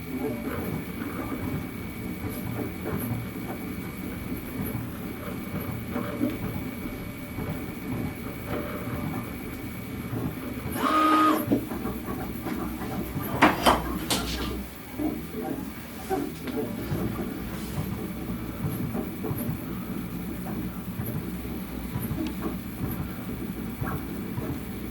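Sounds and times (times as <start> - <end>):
printer motors whirring: 0.0 - 24.9
pitched motor whine: 10.6 - 12.2.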